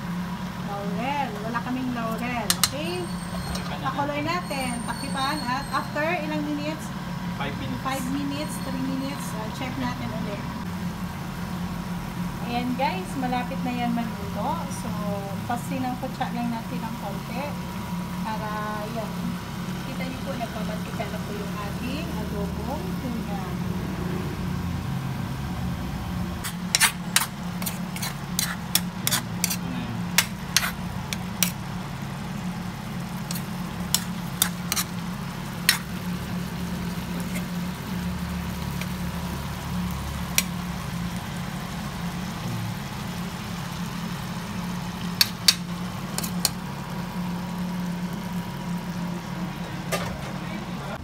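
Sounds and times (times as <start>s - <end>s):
steady low hum: 0.0s - 51.0s
food simmering in oil: 15.4s - 49.9s.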